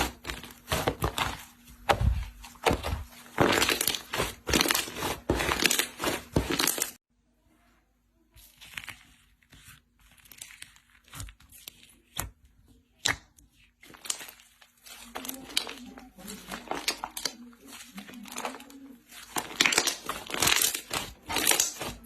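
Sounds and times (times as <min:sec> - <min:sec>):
slime crackling and popping: 0:10.1 - 0:22.0.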